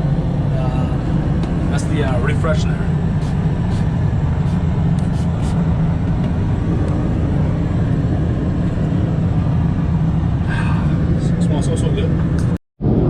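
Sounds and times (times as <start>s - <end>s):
airliner cabin drone: 0.0s - 13.0s.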